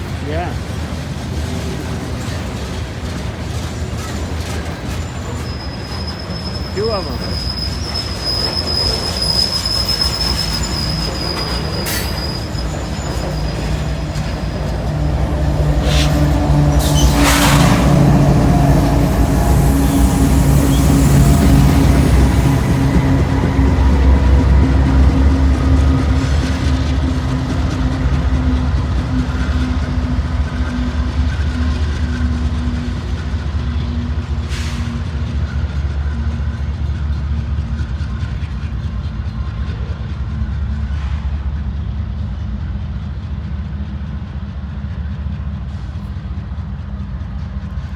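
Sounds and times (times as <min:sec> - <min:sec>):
train cars rumbling past: 0:00.0 - 0:47.9
high wheel squeal: 0:03.7 - 0:26.8.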